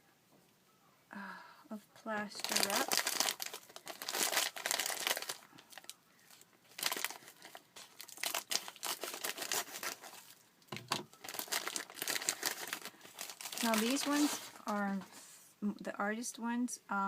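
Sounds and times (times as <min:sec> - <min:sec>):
packaging crinkling and tearing: 0:02.2 - 0:14.9.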